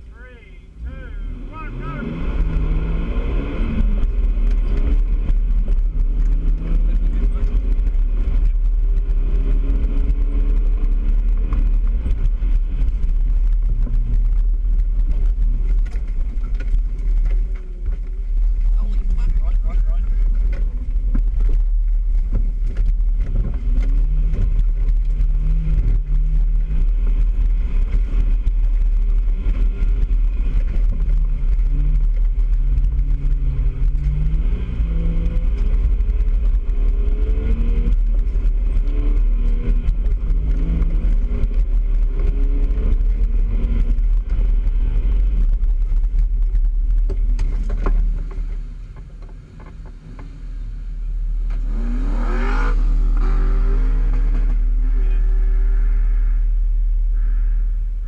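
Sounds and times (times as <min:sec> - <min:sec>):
four-wheel drive engine under load: 0:00.0 - 0:58.0
engine revving sharply: 0:51.5 - 0:55.6.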